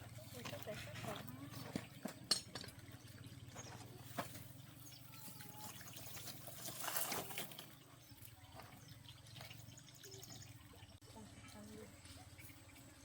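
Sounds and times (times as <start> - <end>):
water trickling and splashing: 2.7 - 11.8.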